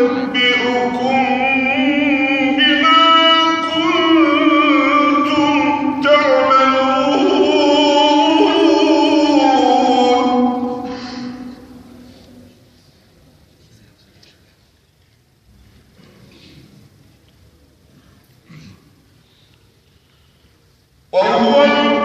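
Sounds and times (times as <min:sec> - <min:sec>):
man chanting melodically: 0:00.0 - 0:12.4, 0:21.1 - 0:22.0.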